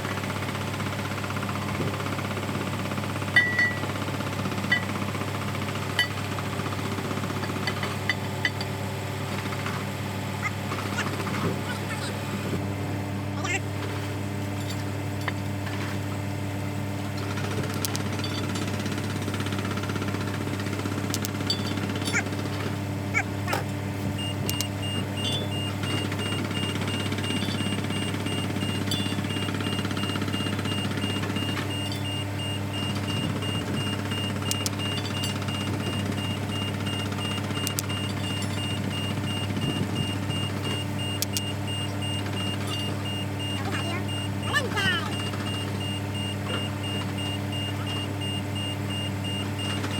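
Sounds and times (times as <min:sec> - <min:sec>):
diesel engine idling: 0:08.8 - 0:49.9
sharp metallic clicks: 0:17.2 - 0:19.2, 0:20.0 - 0:22.3, 0:24.2 - 0:42.9
rapid high beeping: 0:24.2 - 0:49.9.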